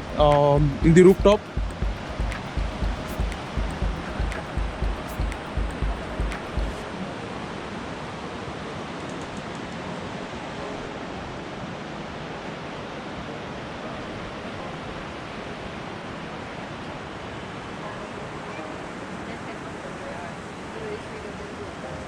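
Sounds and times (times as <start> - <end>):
bass beats of music: 0.0 - 6.8
river rushing: 6.7 - 22.0.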